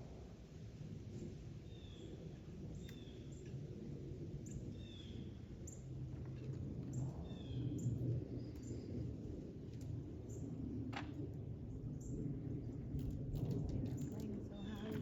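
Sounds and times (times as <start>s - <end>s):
small birds chirping: 14.2s - 15.0s.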